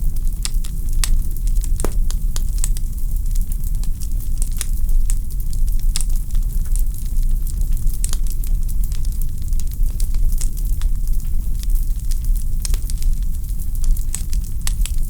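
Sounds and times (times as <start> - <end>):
flames rumbling: 1.8 - 2.9
logs crackling and popping: 1.8 - 2.9.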